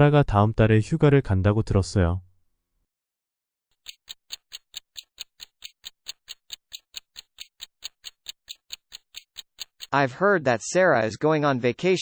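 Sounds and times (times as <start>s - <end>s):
clock ticking: 3.8s - 10.0s.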